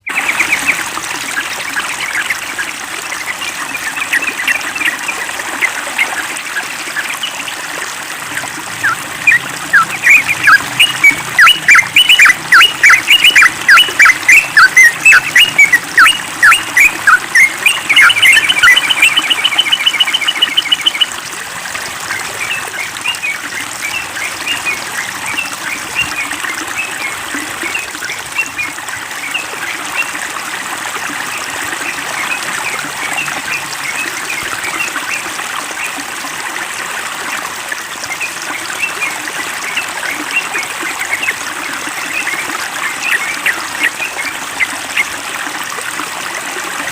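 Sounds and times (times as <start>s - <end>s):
trickling water: 0.0s - 46.9s
birds chirping: 8.3s - 21.1s
fast even bird trill: 8.8s - 21.1s
loud sharp bird calls: 8.8s - 21.1s.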